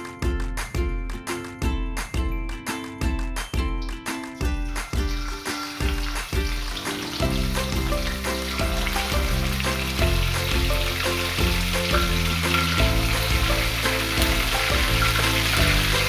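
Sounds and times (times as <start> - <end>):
background music: 0.0 - 16.0
food sizzling in hot oil: 4.6 - 16.0.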